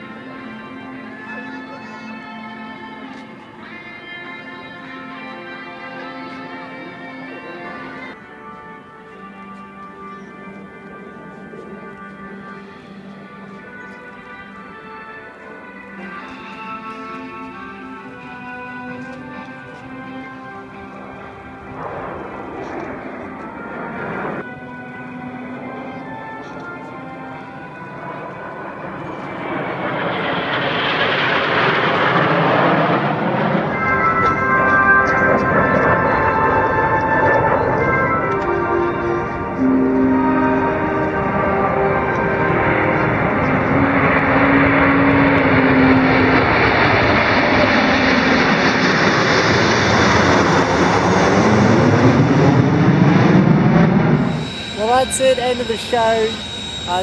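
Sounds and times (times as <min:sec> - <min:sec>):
jets passing overhead: 0:19.2 - 0:24.5, 0:27.4 - 0:57.0.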